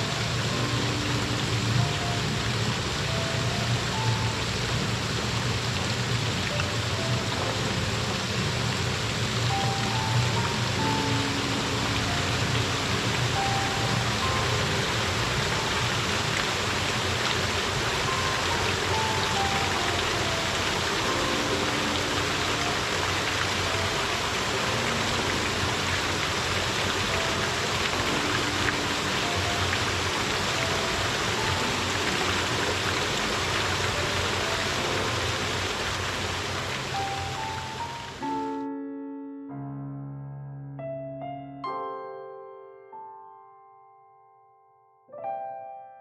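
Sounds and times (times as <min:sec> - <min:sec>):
water flowing over rocks: 0:00.0 - 0:38.3
soft melody of single notes: 0:00.0 - 0:46.0.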